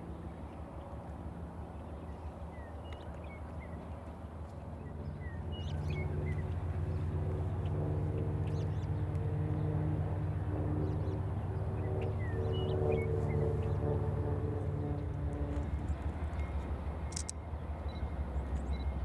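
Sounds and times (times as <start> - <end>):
diesel locomotive engine drone: 10.2 - 19.0.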